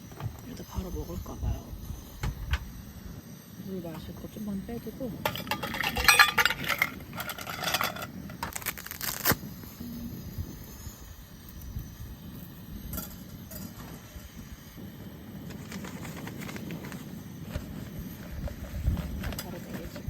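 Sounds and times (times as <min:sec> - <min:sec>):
low outdoor background: 0:00.0 - 0:20.0
cups and cookware clinking: 0:05.2 - 0:08.1.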